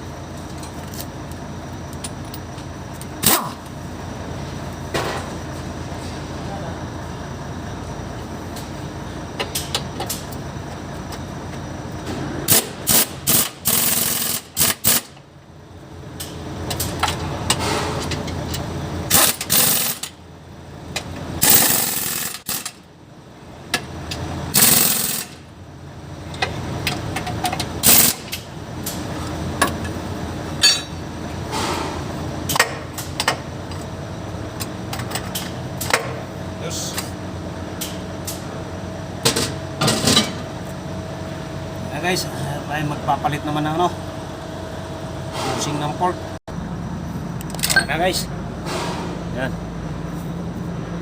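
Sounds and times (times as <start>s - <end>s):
steady workshop hum: 0.0s - 51.0s
pneumatic impact wrench bursts: 12.5s - 15.2s, 19.1s - 20.2s, 21.4s - 22.8s, 24.5s - 25.4s, 27.8s - 28.4s.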